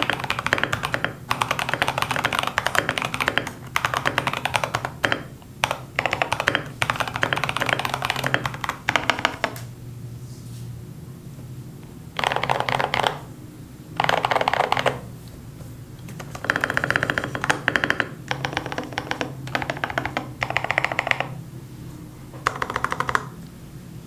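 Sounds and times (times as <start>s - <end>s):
mechanical keyboard typing: 0.0s - 9.7s, 12.2s - 13.3s, 14.0s - 15.1s, 16.0s - 21.4s, 22.4s - 23.4s.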